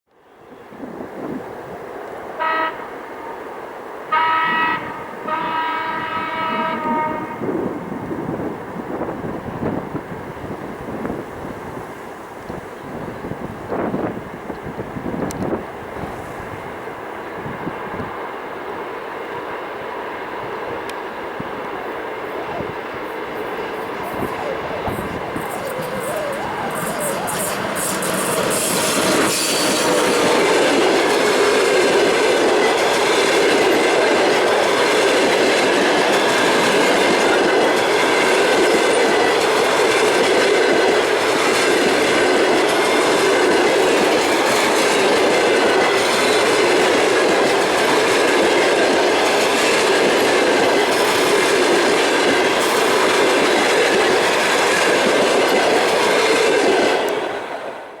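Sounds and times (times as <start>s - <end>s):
train wheels rolling on rails: 0.5s - 58.0s.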